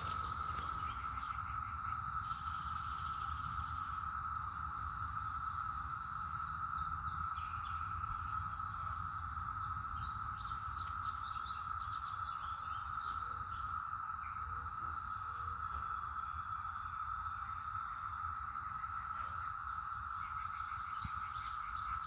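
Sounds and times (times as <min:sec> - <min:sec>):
songbird chirping rapidly: 0:00.0 - 0:12.9
cicadas droning chorus: 0:00.0 - 0:22.0.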